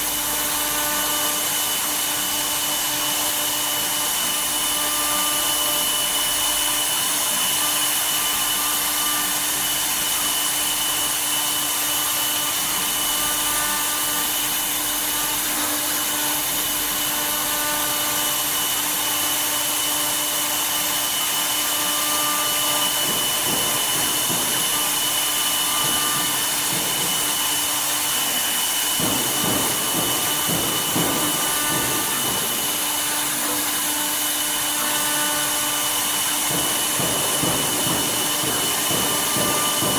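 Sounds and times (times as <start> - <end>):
cnc router spindle whine: 0.0 - 39.9
rough uneven cutting noise: 21.1 - 39.9.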